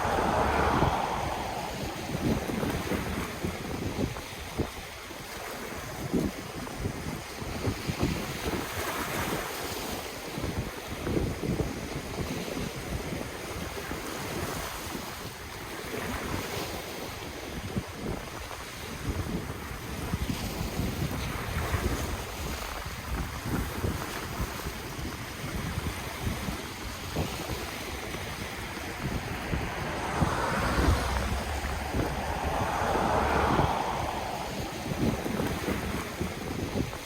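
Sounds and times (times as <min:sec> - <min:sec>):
ocean waves breaking: 0:00.0 - 0:03.6, 0:25.8 - 0:37.0
wind buffeting microphone: 0:00.0 - 0:04.8, 0:19.0 - 0:37.0.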